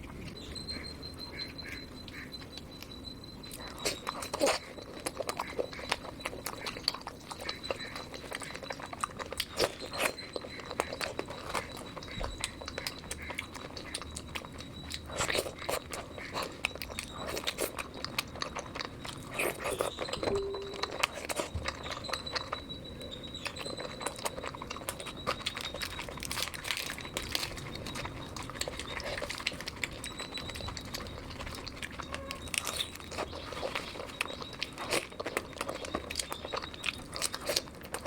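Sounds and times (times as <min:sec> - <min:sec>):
wet chewing mouth clicks: 0:01.4 - 0:38.0
faint high-pitched tone: 0:19.5 - 0:24.0.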